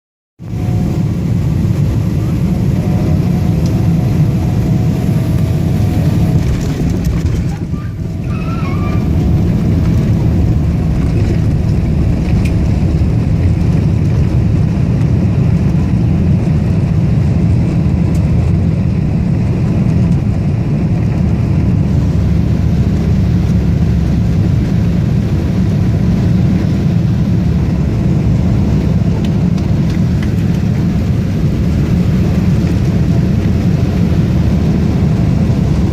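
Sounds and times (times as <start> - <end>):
airplane cabin rumble: 0.4 - 35.9.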